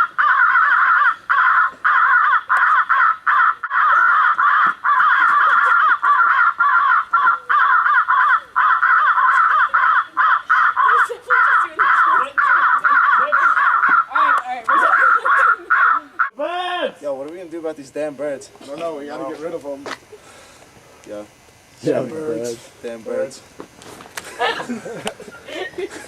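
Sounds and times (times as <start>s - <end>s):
flock of birds calling: 0.0s - 16.4s.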